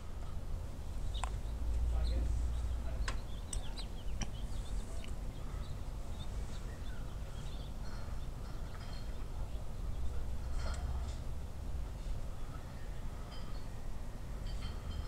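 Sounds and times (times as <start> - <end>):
high bird chirps: 1.0 - 10.2
sharp clicks: 3.0 - 4.4.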